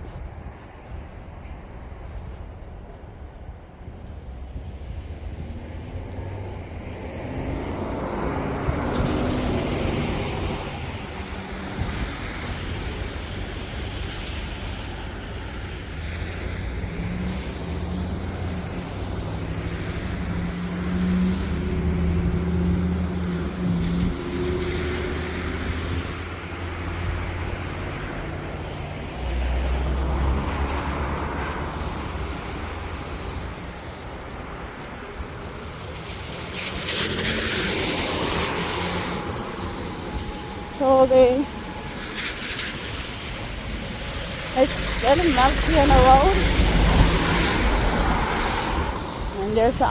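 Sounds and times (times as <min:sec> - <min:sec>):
tyres hissing through slush: 0:35.7 - 0:49.9.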